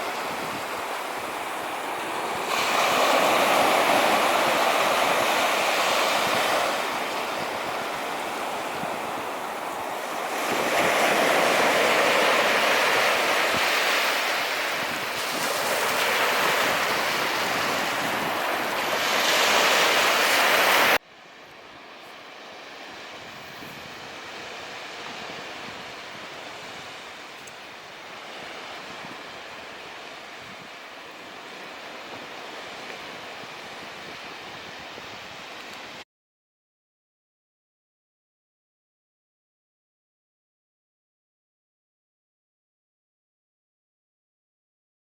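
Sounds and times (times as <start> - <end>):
surf breaking on beach: 0.0 - 21.0
wind on microphone: 0.0 - 36.0.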